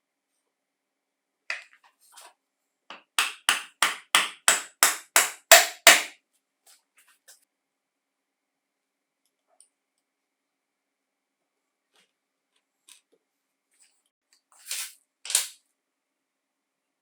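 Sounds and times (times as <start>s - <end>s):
sharp hammer taps: 3.2s - 6.1s.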